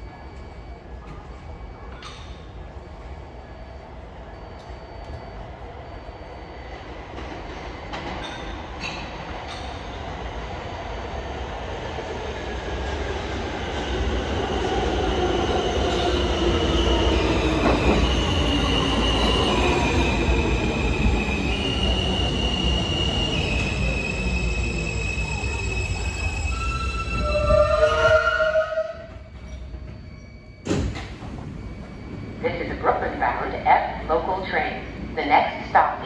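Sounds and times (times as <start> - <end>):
subway train motor whine: 10.1 - 36.0
wheel squeal: 21.2 - 30.9.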